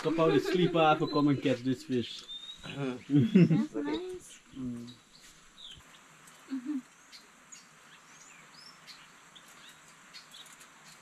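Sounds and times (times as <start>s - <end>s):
birds chirping: 0.0s - 11.0s
person humming: 4.6s - 4.9s, 6.5s - 6.8s.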